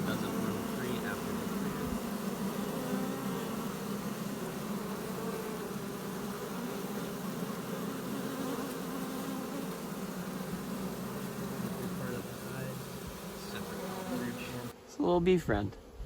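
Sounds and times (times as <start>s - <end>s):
bees buzzing: 0.0s - 15.1s.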